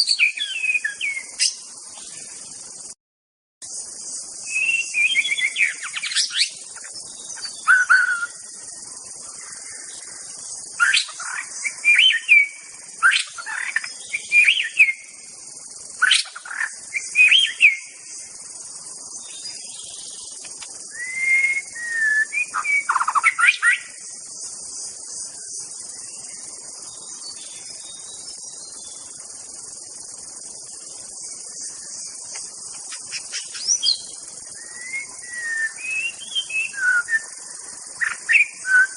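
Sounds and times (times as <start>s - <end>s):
high-pitched insect hiss: 0.0s - 3.0s, 3.6s - 38.9s
bird singing loud whistles: 4.4s - 6.6s, 7.4s - 8.4s, 10.8s - 15.1s, 17.0s - 17.9s, 20.9s - 24.0s, 33.3s - 37.4s, 38.0s - 38.9s.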